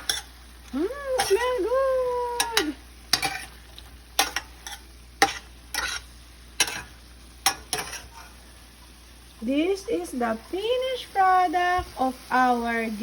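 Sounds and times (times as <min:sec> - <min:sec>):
faint sizzle: 0:00.0 - 0:13.0
utensil scraping and clinking pan: 0:02.4 - 0:03.6, 0:04.2 - 0:08.4.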